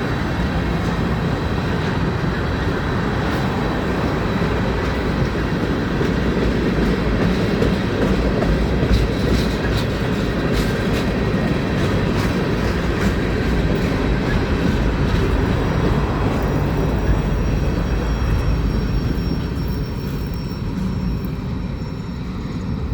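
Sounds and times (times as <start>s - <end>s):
steel wheels rumbling on rail: 0.0s - 22.9s
wheels clicking over rail joints: 0.1s - 21.5s
high ring from wheels: 15.1s - 22.9s.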